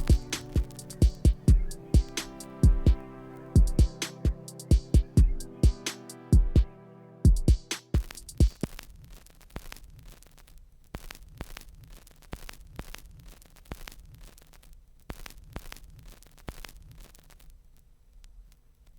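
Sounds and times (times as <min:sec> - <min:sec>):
steady low hum: 0:00.0 - 0:08.6
quiet hiss: 0:00.0 - 0:18.9
vinyl crackle clicks: 0:07.8 - 0:18.9.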